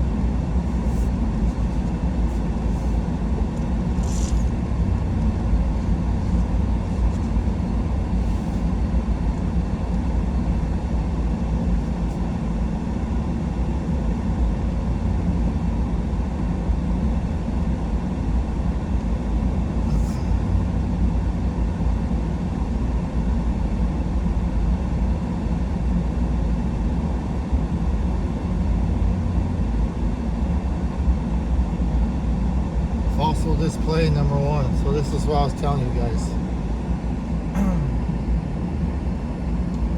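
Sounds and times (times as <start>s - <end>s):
truck engine and tyre rumble: 0.0s - 15.8s, 19.0s - 23.6s.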